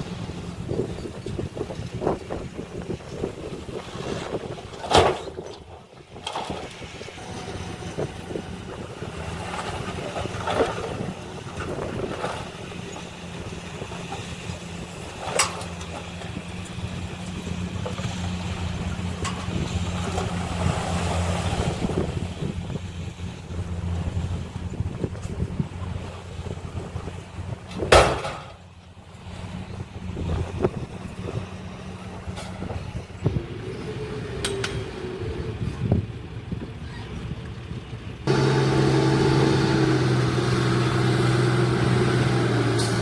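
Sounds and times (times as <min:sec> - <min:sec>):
diesel engine running: 0:00.0 - 0:04.8, 0:06.7 - 0:43.0.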